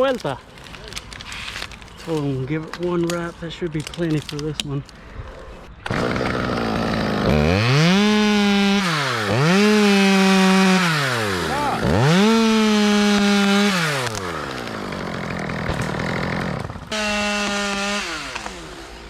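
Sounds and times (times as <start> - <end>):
chainsaw idling and revving: 5.9 - 19.0.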